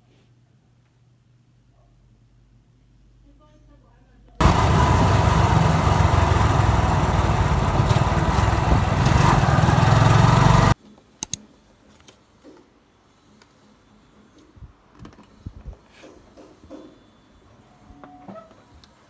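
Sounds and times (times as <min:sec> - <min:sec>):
motor running loudly: 0:04.4 - 0:10.8.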